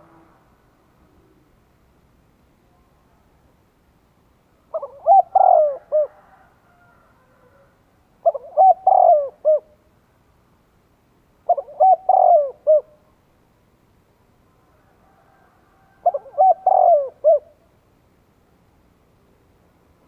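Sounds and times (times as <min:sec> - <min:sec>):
dove cooing: 0:04.7 - 0:06.5, 0:07.2 - 0:09.8, 0:11.5 - 0:13.0, 0:15.9 - 0:17.6.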